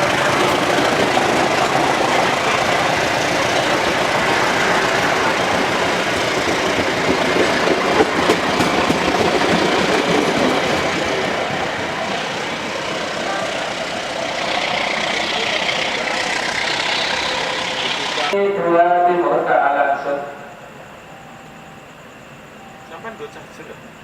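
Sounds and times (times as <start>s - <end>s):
train wheels rumbling on rails: 0.0s - 18.4s.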